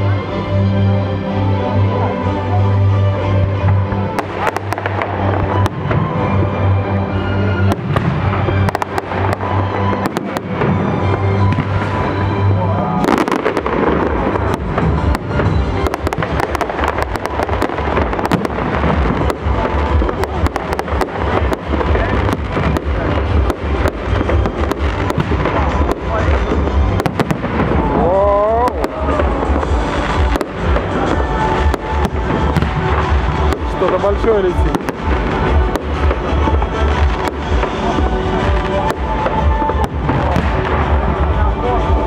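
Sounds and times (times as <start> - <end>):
fireworks bangs and crackles: 3.2 - 42.0.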